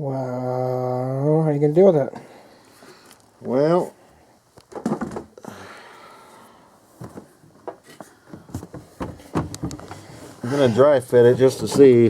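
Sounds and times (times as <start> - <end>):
parts clicking and knocking: 7.0 - 10.0.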